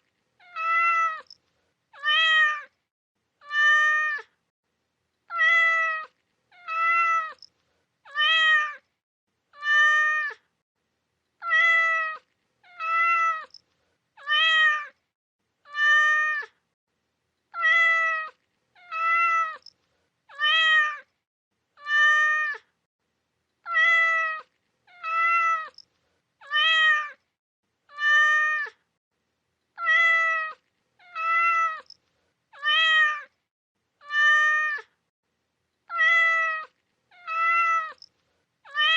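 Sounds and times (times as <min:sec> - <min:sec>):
cat meowing: 0:00.4 - 0:01.4, 0:02.0 - 0:02.7, 0:03.4 - 0:04.3, 0:05.3 - 0:07.5, 0:08.1 - 0:08.8, 0:09.6 - 0:10.4, 0:11.4 - 0:13.6, 0:14.2 - 0:15.0, 0:15.7 - 0:16.6, 0:17.5 - 0:19.7, 0:20.3 - 0:21.1, 0:21.8 - 0:22.7, 0:23.6 - 0:25.8, 0:26.4 - 0:27.2, 0:27.9 - 0:28.8, 0:29.8 - 0:32.0, 0:32.6 - 0:33.4, 0:34.0 - 0:35.0, 0:35.9 - 0:38.9.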